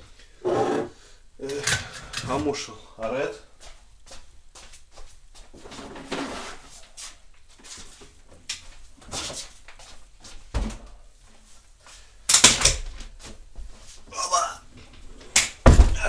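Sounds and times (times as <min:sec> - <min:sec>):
scraping rustle: 0:05.6 - 0:08.0.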